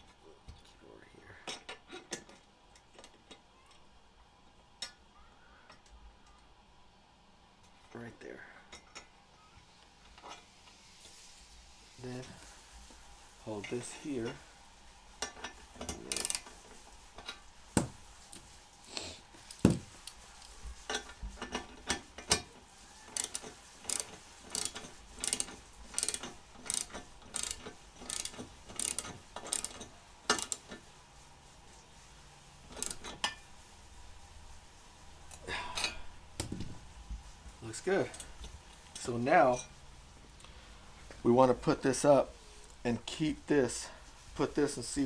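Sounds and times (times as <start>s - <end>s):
socket ratchet clicking: 15.8s - 16.5s, 23.2s - 30.6s, 32.7s - 33.2s.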